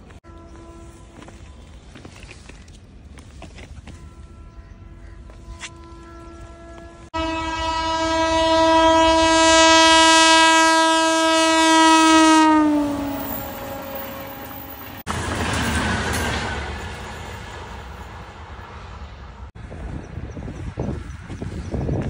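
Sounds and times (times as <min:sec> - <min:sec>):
locomotive horn: 0:00.2 - 0:01.9, 0:03.8 - 0:15.0
train wheels clattering: 0:14.0 - 0:18.4.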